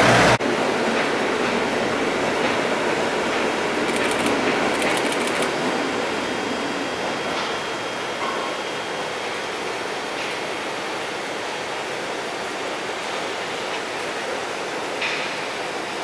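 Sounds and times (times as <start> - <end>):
train rumbling slowly: 0.0 - 16.0.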